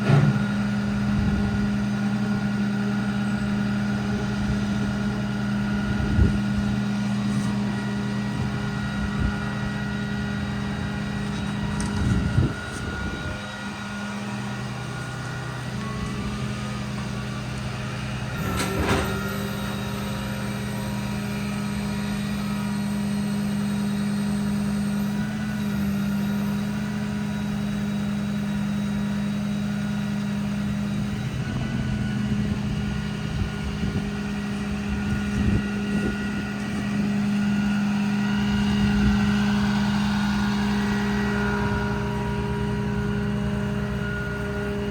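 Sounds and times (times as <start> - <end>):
diesel truck engine running: 0.0 - 44.9.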